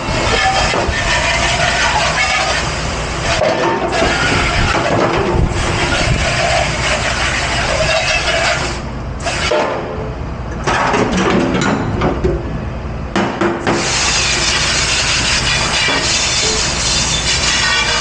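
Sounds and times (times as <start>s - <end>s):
spraying water hiss: 13.8s - 18.0s.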